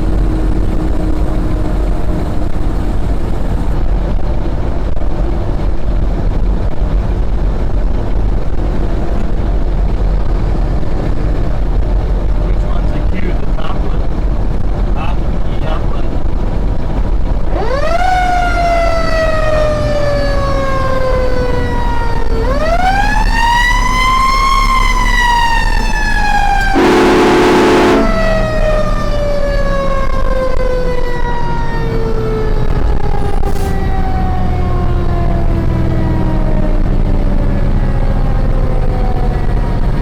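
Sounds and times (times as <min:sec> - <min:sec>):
truck engine rumble: 0:00.0 - 0:40.0
fire engine siren wailing: 0:17.4 - 0:40.0
truck horn blast: 0:26.5 - 0:28.9.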